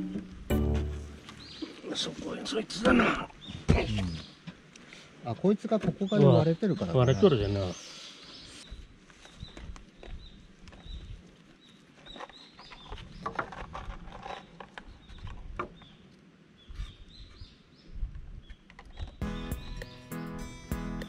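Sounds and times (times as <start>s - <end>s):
music: 0.0s - 1.5s, 19.2s - 21.0s
small bird chirping: 16.6s - 20.8s.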